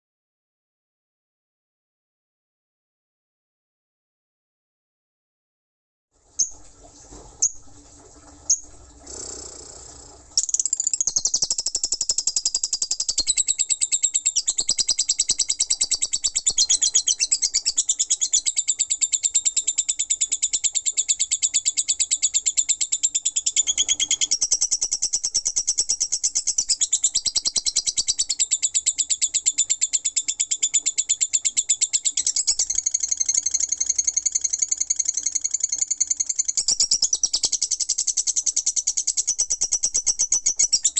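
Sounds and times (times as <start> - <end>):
fast high chattering bird trill: 10.4 - 19.1, 31.6 - 40.9
bird chirps: 10.4 - 40.9.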